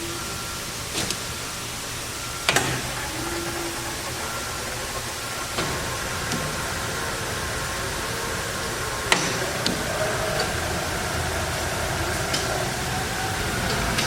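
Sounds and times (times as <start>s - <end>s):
lathe running: 0.0s - 14.0s
sharp clicks: 0.9s - 6.6s.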